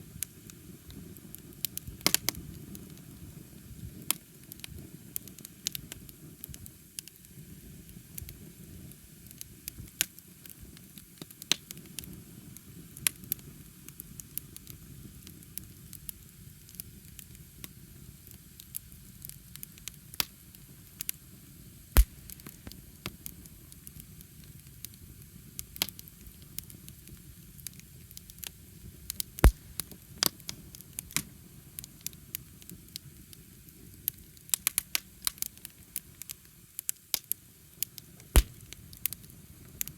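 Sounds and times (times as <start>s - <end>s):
burning wood crackling: 0.0s - 39.9s
loud wood pops: 22.0s - 22.8s, 29.4s - 29.9s, 38.4s - 38.8s.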